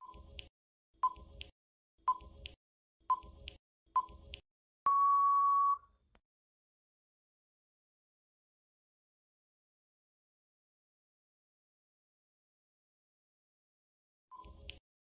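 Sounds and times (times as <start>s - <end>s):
short timer beeps: 2.1s - 5.8s
long timer beep: 4.9s - 5.9s.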